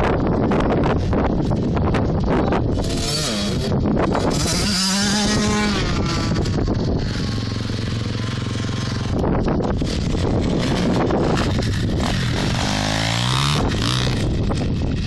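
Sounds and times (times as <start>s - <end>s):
motocross bike engines revving: 0.8s - 15.0s.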